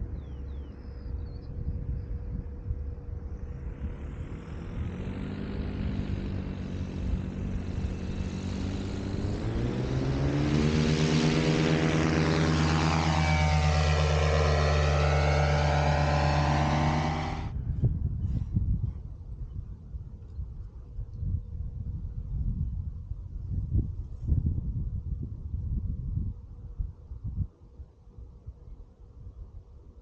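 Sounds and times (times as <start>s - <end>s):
paramotor engine revving: 3.3s - 17.5s.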